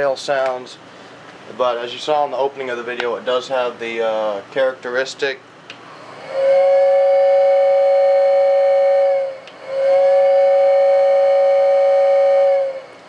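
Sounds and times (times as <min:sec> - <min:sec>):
toy train air whistle blasts: 0:06.0 - 0:13.0.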